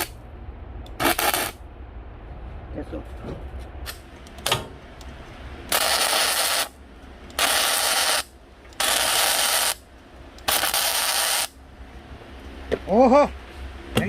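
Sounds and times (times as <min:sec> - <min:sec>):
arc welding crackling and hissing: 0:00.9 - 0:01.6, 0:05.0 - 0:11.6.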